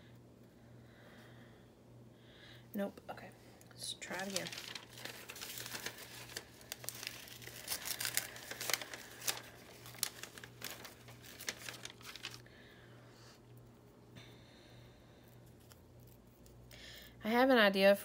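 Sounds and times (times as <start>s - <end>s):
paper tearing and crinkling: 4.0s - 12.4s.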